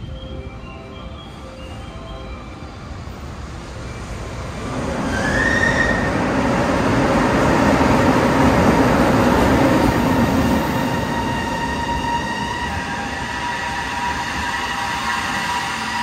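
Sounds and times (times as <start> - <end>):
freight train rumble: 0.0 - 16.0
high squeal: 5.0 - 6.2.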